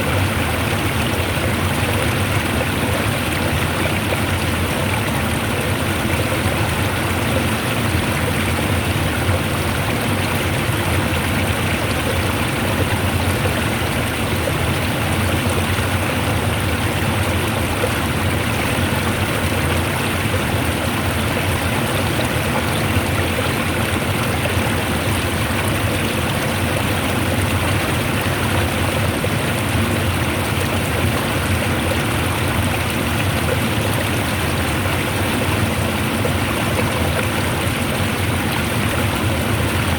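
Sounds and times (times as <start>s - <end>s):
fast-flowing water rushing: 0.0s - 39.9s.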